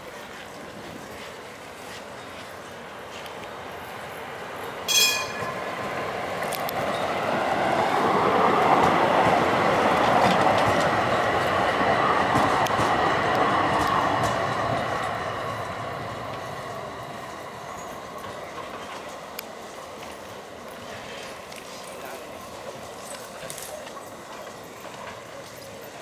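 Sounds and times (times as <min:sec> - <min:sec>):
tram wheels on rails: 0:00.0 - 0:26.0
brief high ring: 0:04.9 - 0:05.8.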